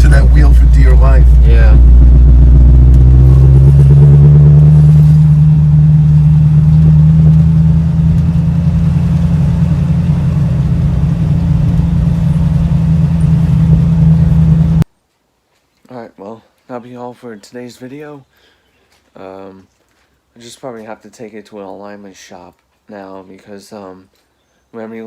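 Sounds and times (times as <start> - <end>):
car engine droning: 0.0 - 14.9
road noise: 0.0 - 14.9.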